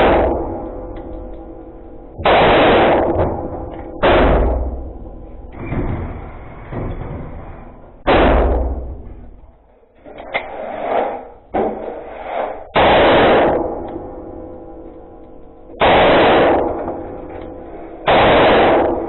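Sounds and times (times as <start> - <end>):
pistol shots echoing: 0.0 - 1.0, 2.2 - 5.0, 12.7 - 14.8, 15.6 - 19.0.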